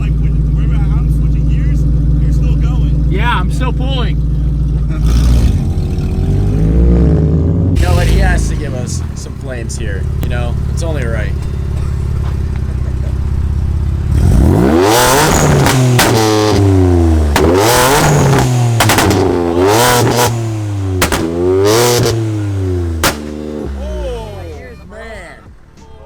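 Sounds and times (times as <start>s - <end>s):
car engine revving: 0.0s - 25.2s
exhaust pops and cracks: 7.8s - 13.4s, 14.9s - 22.3s, 22.9s - 23.8s.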